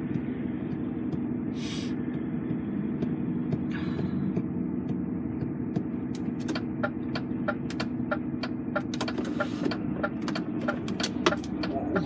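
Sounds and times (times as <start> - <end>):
truck engine drone: 0.0 - 12.0.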